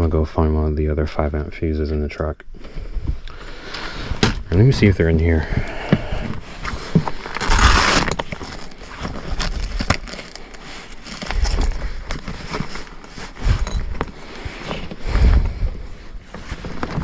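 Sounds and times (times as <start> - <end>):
rustling scrape: 6.3 - 17.0.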